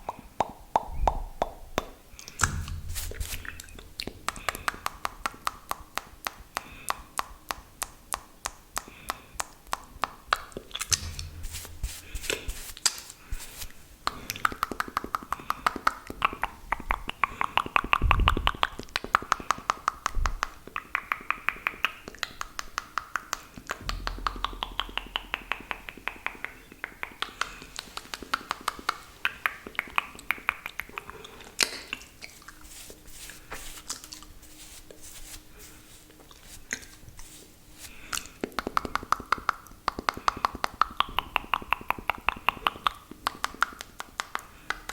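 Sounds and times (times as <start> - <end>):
low thump: 2.4 - 5.2, 10.9 - 13.6, 23.8 - 27.8.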